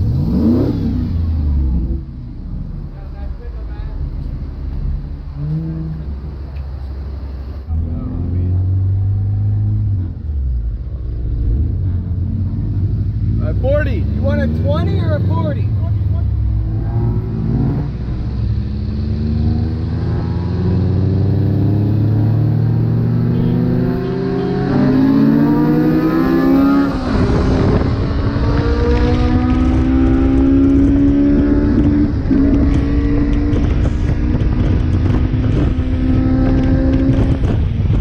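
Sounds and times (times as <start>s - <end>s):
car engine running under load: 26.8s - 38.0s.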